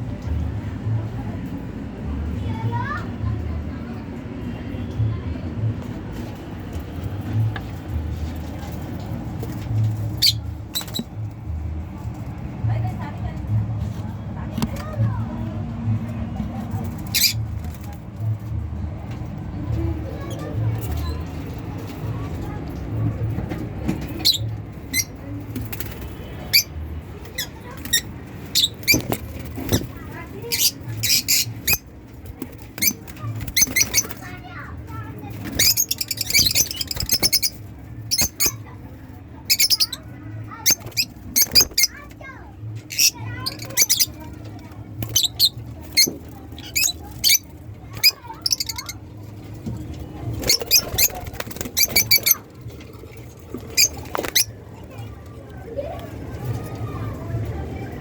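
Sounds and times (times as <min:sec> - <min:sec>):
low background hum: 0:00.0 - 0:58.0
lovebirds chirping shrilly: 0:29.8 - 0:31.8, 0:32.8 - 0:34.3, 0:35.4 - 0:38.6, 0:46.6 - 0:49.0, 0:50.4 - 0:52.4
lovebirds chirping: 0:50.4 - 0:52.4.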